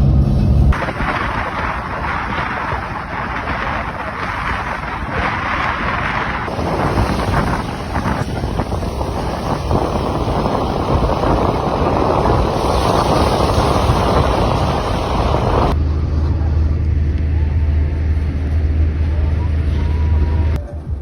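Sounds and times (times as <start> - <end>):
wind buffeting microphone: 0.0 - 15.8
low vehicle drone: 0.0 - 21.0.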